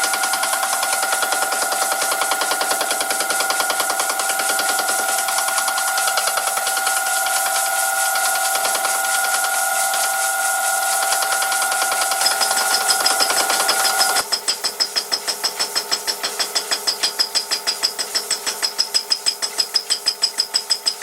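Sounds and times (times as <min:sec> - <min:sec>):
rapid even clicking: 0:00.0 - 0:07.6
machine tool whining: 0:00.0 - 0:14.3.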